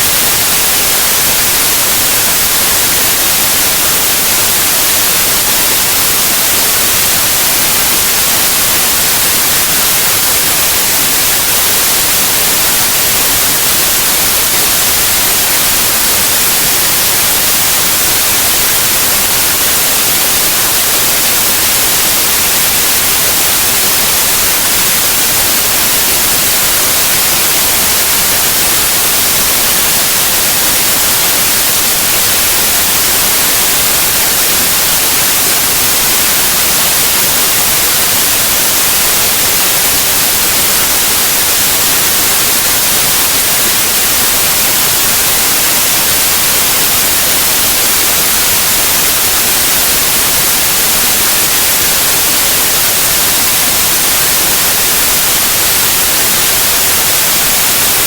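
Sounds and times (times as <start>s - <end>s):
loud white noise hiss: 0.0s - 58.0s.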